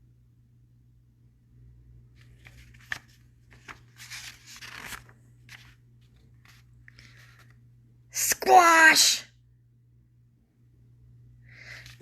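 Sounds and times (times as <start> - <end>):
paper rustling and flapping: 2.1 - 7.6.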